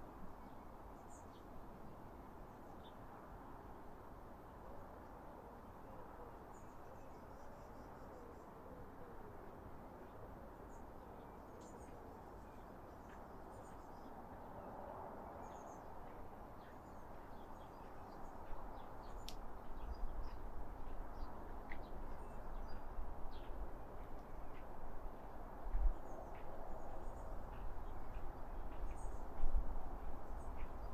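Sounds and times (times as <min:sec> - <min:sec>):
songbirds chirping: 0:10.0 - 0:30.9.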